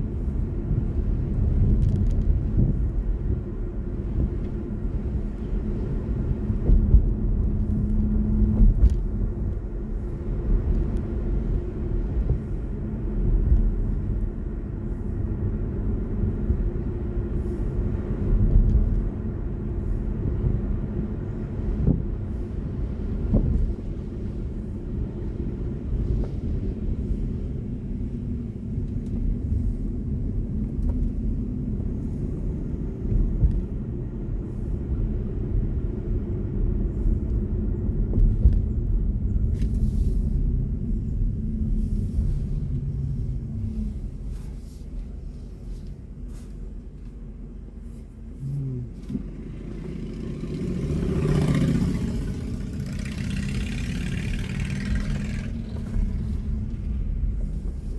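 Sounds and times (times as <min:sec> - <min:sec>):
car road and tyre rumble: 0:00.0 - 0:57.9.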